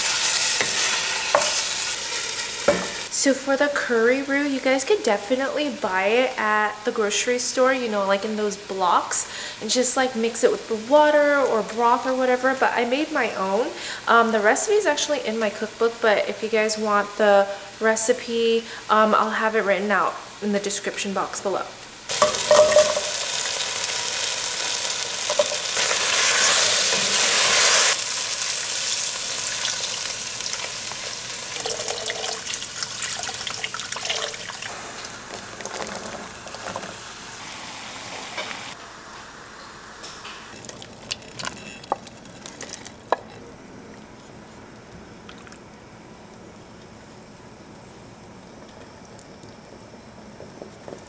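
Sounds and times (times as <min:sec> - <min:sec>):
food sizzling in a pot: 0:00.0 - 0:04.6, 0:22.1 - 0:40.7.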